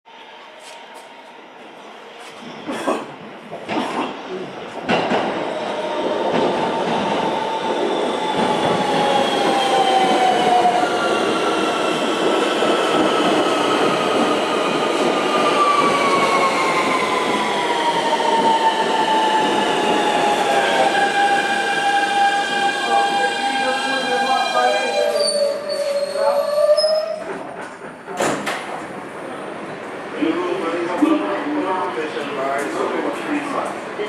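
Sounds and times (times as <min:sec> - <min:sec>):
train rumbling on rails: 0:00.1 - 0:34.0.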